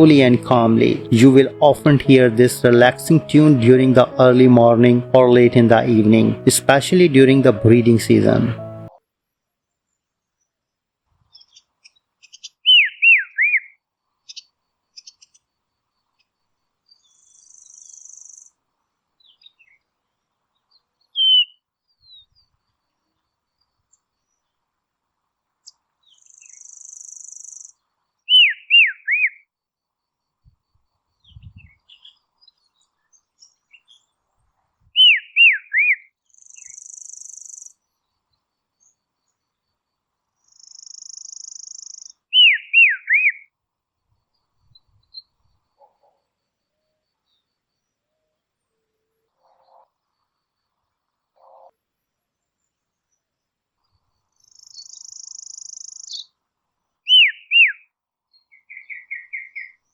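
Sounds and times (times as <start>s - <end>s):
robin singing whistled notes: 35.0s - 37.7s, 40.5s - 43.4s, 57.1s - 57.8s, 58.5s - 59.9s.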